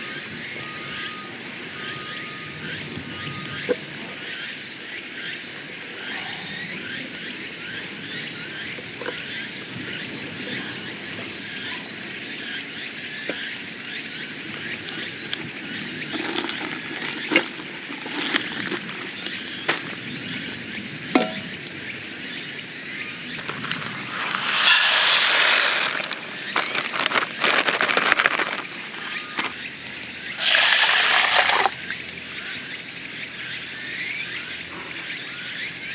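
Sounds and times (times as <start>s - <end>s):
camp gear knocks: 21.2s - 21.5s.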